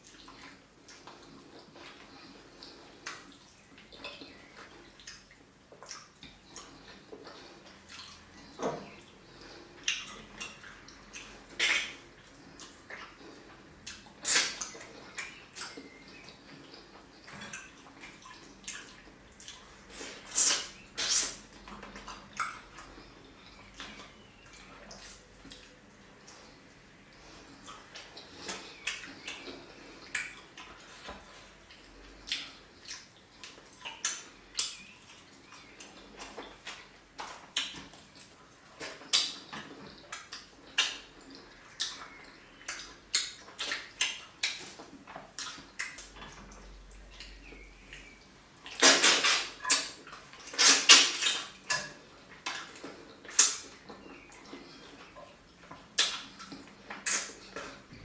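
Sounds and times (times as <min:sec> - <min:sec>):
wet slurping: 0:00.0 - 0:36.6
wet chewing and mouth clicks: 0:00.0 - 0:58.0.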